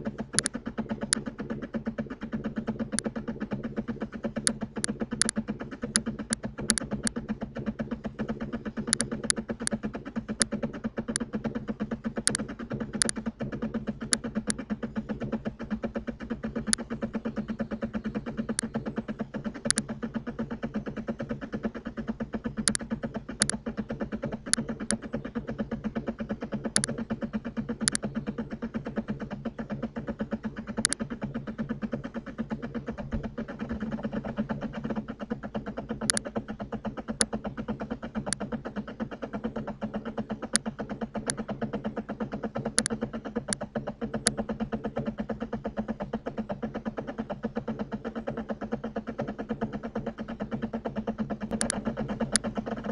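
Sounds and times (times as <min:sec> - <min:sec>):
buzzing background hum: 0:00.0 - 0:52.9
computer mouse clicks: 0:00.3 - 0:01.6, 0:02.3 - 0:11.6, 0:12.2 - 0:15.4, 0:16.2 - 0:19.9, 0:22.6 - 0:25.1, 0:26.5 - 0:27.1, 0:27.8 - 0:28.1, 0:30.7 - 0:31.1, 0:36.0 - 0:36.4, 0:37.1 - 0:38.5, 0:40.4 - 0:41.5, 0:42.3 - 0:44.6, 0:49.8 - 0:52.9.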